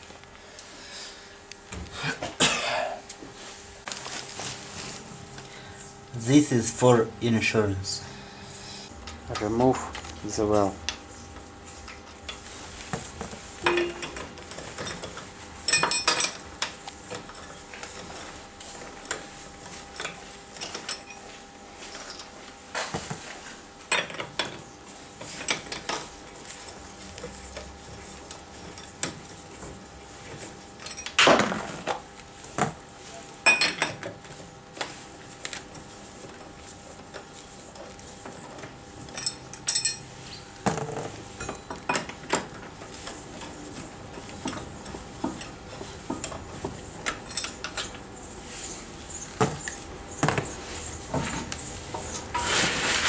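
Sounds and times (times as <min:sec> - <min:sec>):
metal tools and lug nuts clanking: 0:13.7 - 0:14.2, 0:39.1 - 0:40.1, 0:47.0 - 0:48.0.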